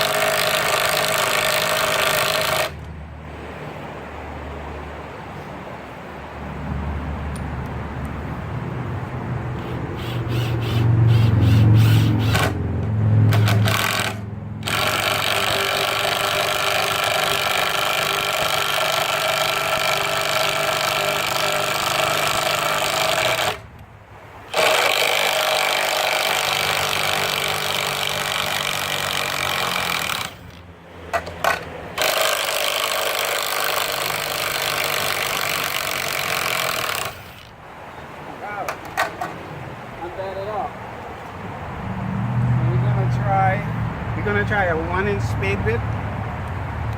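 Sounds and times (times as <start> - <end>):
impact driver hammering screws into wood: 0.0 - 2.8, 9.6 - 12.6, 13.3 - 23.6, 24.5 - 37.5.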